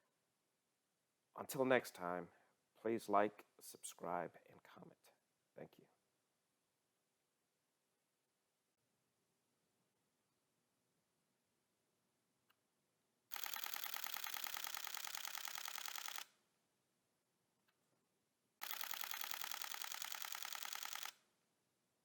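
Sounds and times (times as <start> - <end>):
camera shutter clicks: 13.3 - 16.3, 18.6 - 21.1.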